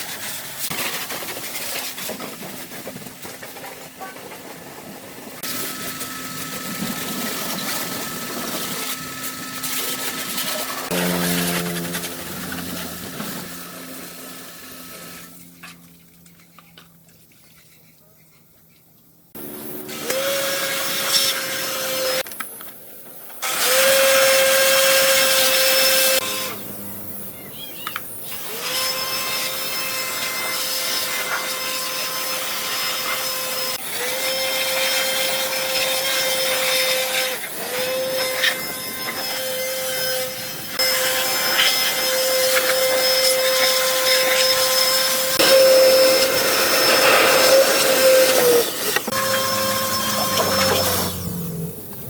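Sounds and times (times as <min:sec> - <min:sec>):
electric motor tool whining: 0:05.4 - 0:15.6, 0:19.4 - 0:22.2, 0:23.4 - 0:52.0.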